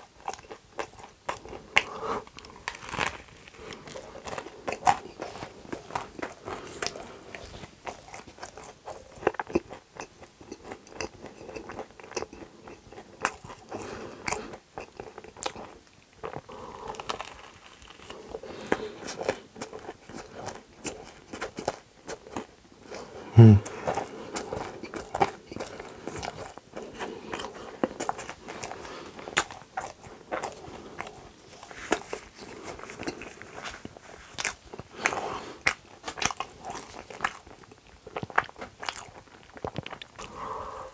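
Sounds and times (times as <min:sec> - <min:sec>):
crunchy wet chewing: 0:00.0 - 0:40.6
loud low mouth sound: 0:23.3 - 0:23.7.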